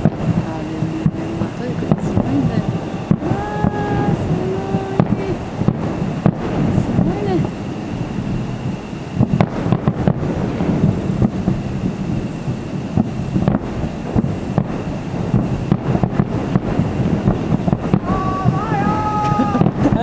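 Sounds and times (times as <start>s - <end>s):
distant fireworks popping: 0.0s - 20.0s
low rumble: 0.0s - 20.0s.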